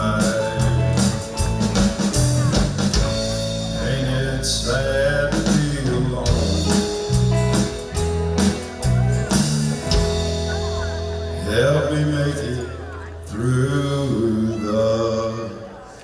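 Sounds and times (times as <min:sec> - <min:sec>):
live country band playing: 0:00.0 - 0:15.7.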